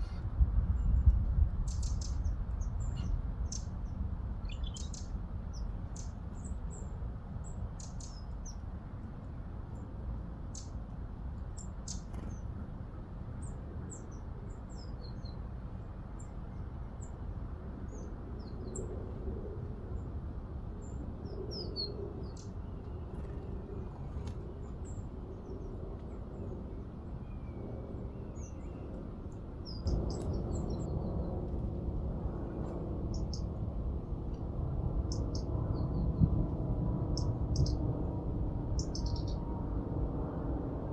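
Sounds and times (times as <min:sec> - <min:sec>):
small birds chirping: 0:00.0 - 0:08.6, 0:10.5 - 0:10.8, 0:11.6 - 0:12.5, 0:20.8 - 0:31.4, 0:32.6 - 0:33.5, 0:35.1 - 0:36.3, 0:37.1 - 0:37.8, 0:38.8 - 0:39.5
low background rumble: 0:20.8 - 0:40.9.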